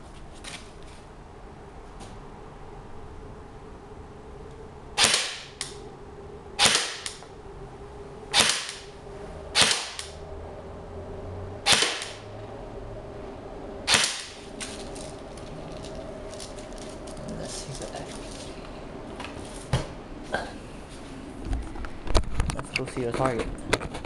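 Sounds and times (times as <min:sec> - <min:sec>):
airsoft rifle shots: 0:05.0 - 0:05.6, 0:06.6 - 0:07.2, 0:08.3 - 0:08.9, 0:09.6 - 0:10.1, 0:11.6 - 0:12.2, 0:13.9 - 0:14.4.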